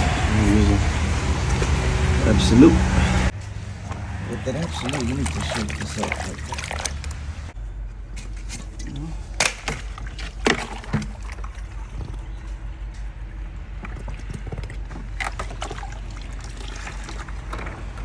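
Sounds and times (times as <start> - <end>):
liquid sloshing and pouring: 3.7 - 7.6, 8.3 - 18.0.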